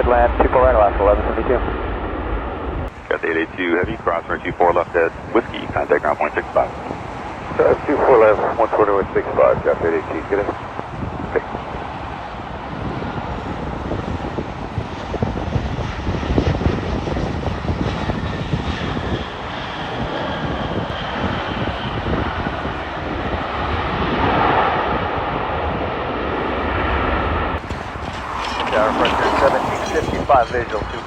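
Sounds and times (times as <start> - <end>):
faint high engine whine: 0.0 - 31.0
jet engines roaring: 0.0 - 31.0.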